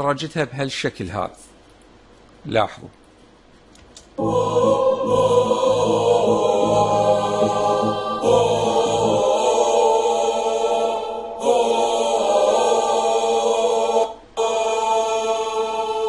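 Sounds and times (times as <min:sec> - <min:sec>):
wordless choir vocals singing chords: 0:04.2 - 0:16.0.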